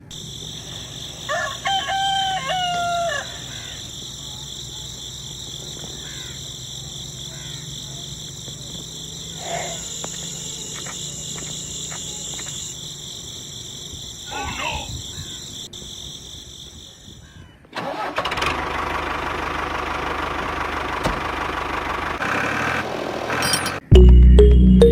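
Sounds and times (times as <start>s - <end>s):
high-pitched insect drone: 0.0s - 17.3s
rooster crowing: 0.1s - 8.4s, 14.3s - 15.7s
faint chirps and ticks: 3.2s - 17.0s.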